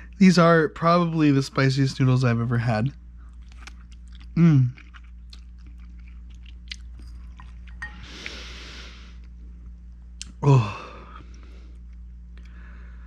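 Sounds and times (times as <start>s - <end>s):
man breathing hard through mouth: 7.9s - 9.2s.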